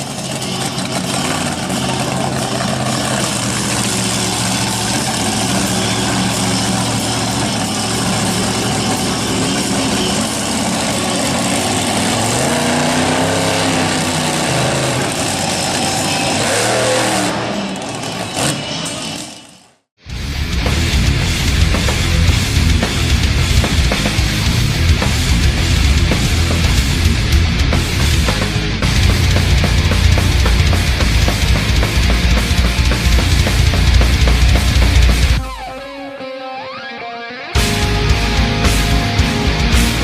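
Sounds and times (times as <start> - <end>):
arena crowd noise: 0.0 - 19.3
truck engine revving: 0.0 - 35.6, 37.6 - 40.0.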